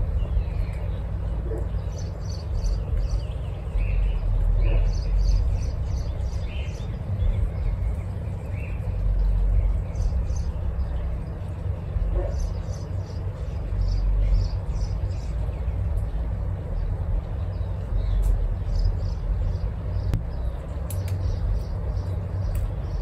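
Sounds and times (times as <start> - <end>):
small birds chirping: 0.0 - 23.0
steady low rumble: 0.0 - 23.0
light clicks: 20.8 - 21.8.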